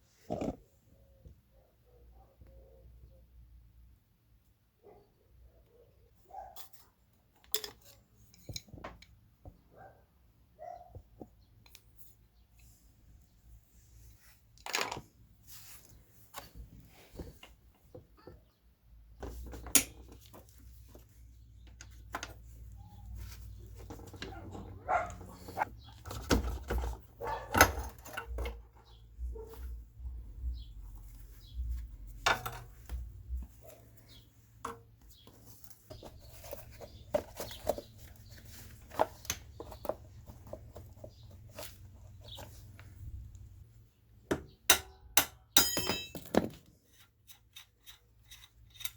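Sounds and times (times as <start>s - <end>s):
metal tools clicking and knocking: 7.3s - 9.2s, 19.4s - 20.4s, 32.2s - 33.0s, 44.3s - 48.9s.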